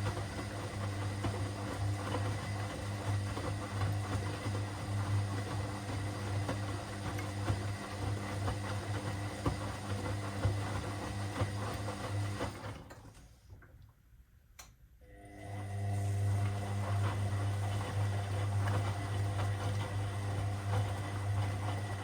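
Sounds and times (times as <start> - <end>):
washing machine motor humming: 0.0 - 13.0, 15.0 - 22.0
click: 14.6 - 14.8.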